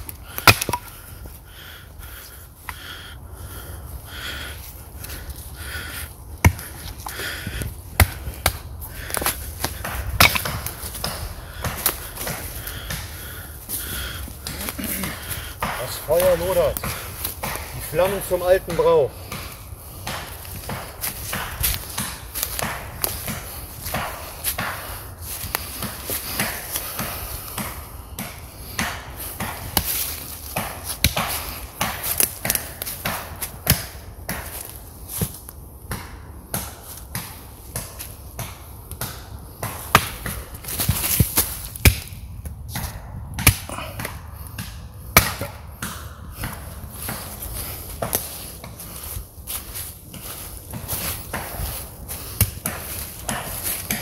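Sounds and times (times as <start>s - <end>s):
campfire wood crackling: 0.0s - 54.0s.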